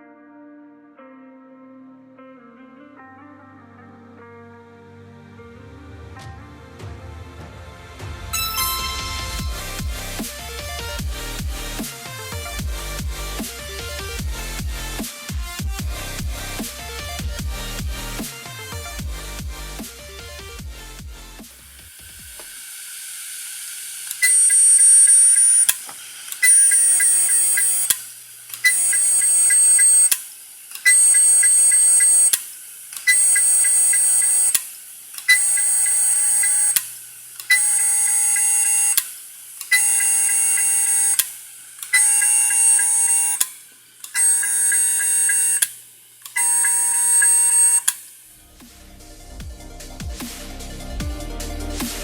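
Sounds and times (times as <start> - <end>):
hard drive beeping: 8.4 - 11.8, 24.1 - 30.2, 30.8 - 32.4, 33.0 - 34.6, 35.2 - 36.8, 37.4 - 48.0.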